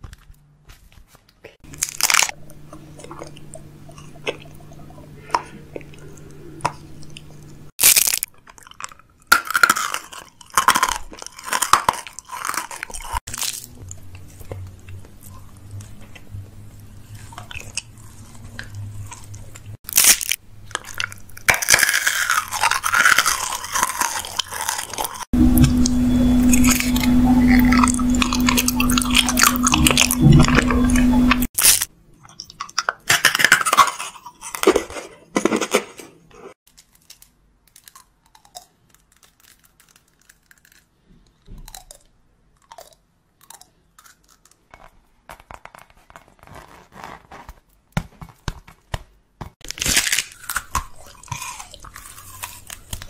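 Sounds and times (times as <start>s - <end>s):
person crunching candy: 1.6s - 36.0s, 36.7s - 46.8s, 49.6s - 53.0s
low hum: 25.3s - 31.5s.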